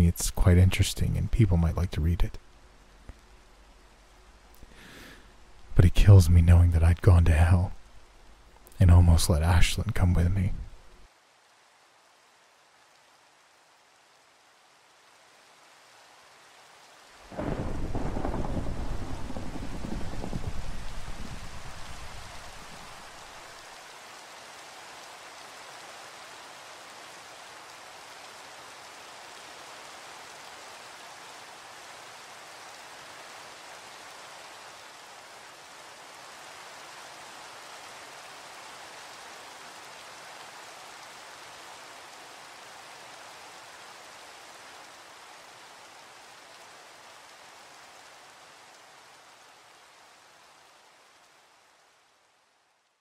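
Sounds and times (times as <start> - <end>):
steady rain falling: 0.0 - 53.0
low thunder rumble: 17.3 - 23.2.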